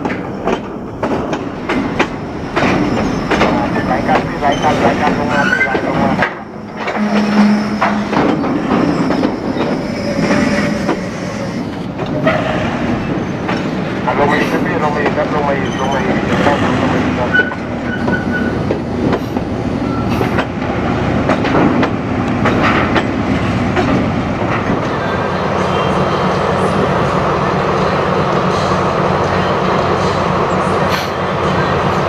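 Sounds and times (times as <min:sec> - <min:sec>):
clanks and knocks: 0:00.0 - 0:11.1, 0:21.2 - 0:24.9
train running on rails: 0:00.0 - 0:32.0.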